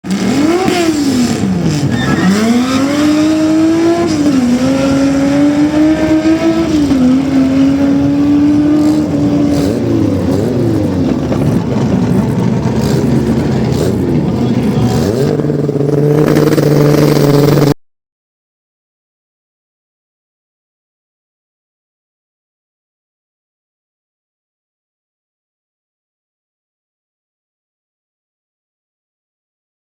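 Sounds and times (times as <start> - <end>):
car engine at full throttle: 0.0 - 17.8.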